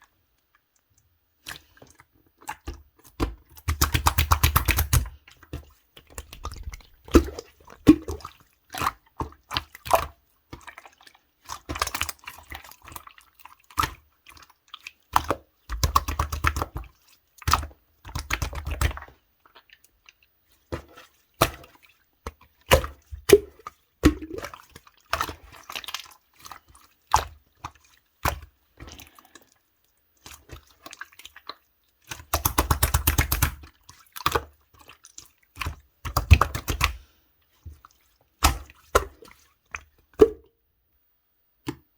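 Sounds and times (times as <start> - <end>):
slime squished by hand: 32.1 - 33.6.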